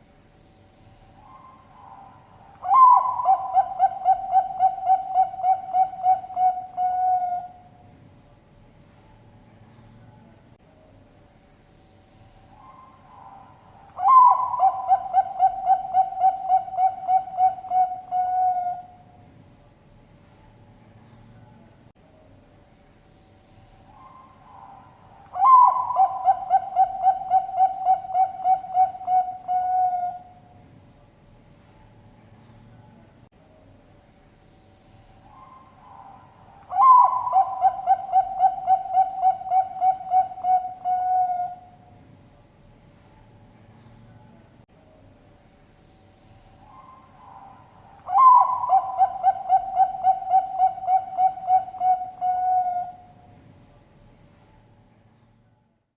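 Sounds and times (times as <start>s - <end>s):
dove cooing: 1.2s - 7.8s, 12.5s - 19.0s, 23.9s - 30.4s, 35.3s - 41.8s, 46.6s - 53.2s.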